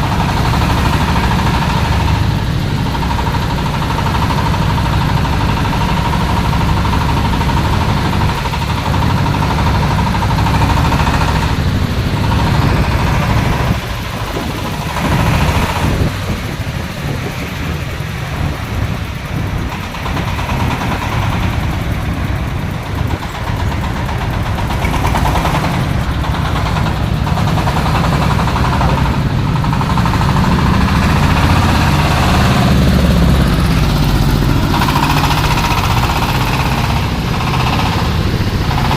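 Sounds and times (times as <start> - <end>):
diesel engine rumbling: 0.0 - 38.9
machine whine: 0.0 - 38.9.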